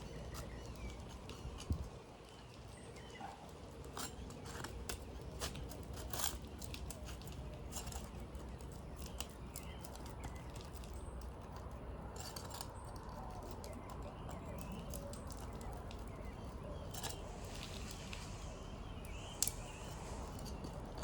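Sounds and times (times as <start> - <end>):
putty knife scraping shingles: 3.8 - 9.3
faint bird chirps: 13.4 - 21.0.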